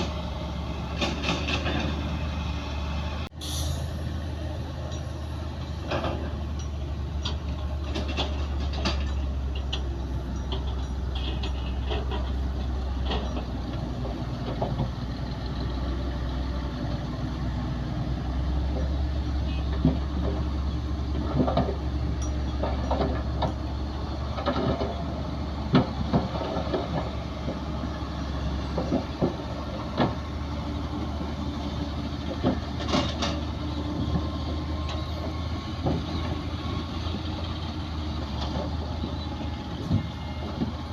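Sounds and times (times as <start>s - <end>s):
metallic clanks and knocks: 0.0s - 2.2s, 4.8s - 15.8s, 18.6s - 30.4s, 31.1s - 36.5s
diesel earthmoving machinery running: 0.0s - 40.9s.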